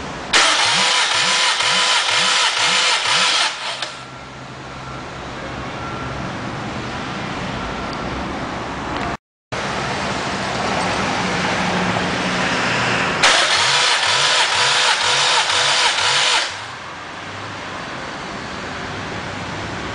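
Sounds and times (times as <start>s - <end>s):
starter motor cranking engine: 0.4s - 4.1s, 13.2s - 16.8s.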